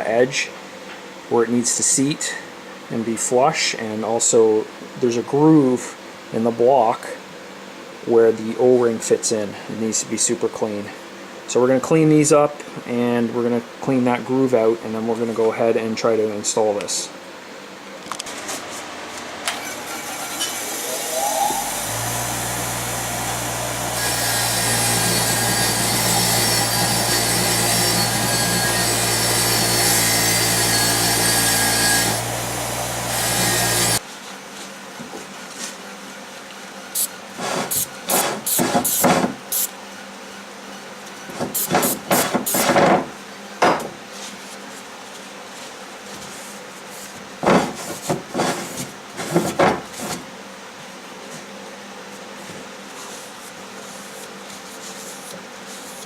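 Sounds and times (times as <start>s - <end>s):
power tool scraping metal: 19.5s - 34.0s
hand scraping and brushing: 44.1s - 50.3s, 52.1s - 56.0s.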